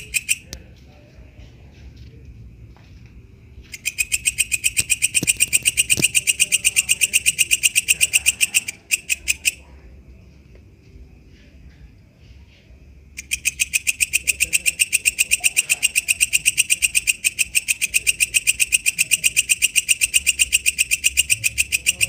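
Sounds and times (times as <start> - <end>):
katydid clicking call: 0.0 - 0.6, 3.7 - 9.6, 13.2 - 22.0.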